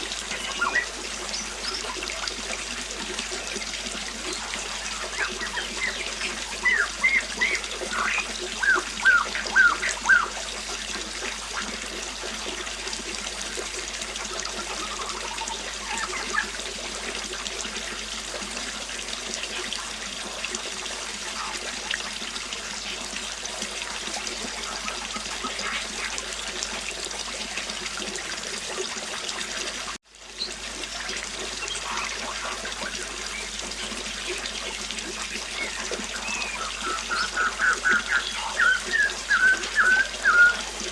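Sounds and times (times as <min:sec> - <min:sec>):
river flowing: 0:00.0 - 0:11.6, 0:30.8 - 0:40.9
small birds chirping: 0:00.2 - 0:02.4, 0:03.3 - 0:10.4, 0:14.6 - 0:16.6, 0:31.5 - 0:34.4, 0:35.2 - 0:40.9.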